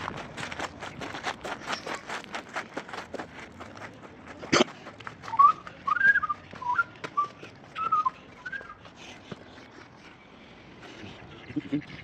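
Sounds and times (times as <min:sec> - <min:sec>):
person whistling a tune: 0:05.3 - 0:08.8.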